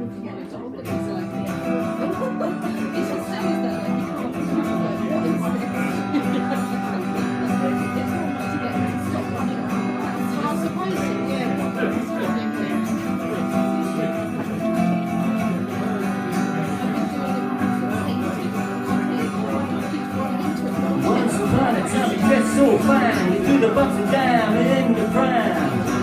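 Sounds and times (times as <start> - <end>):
guitar strumming chords: 0.0 - 26.0.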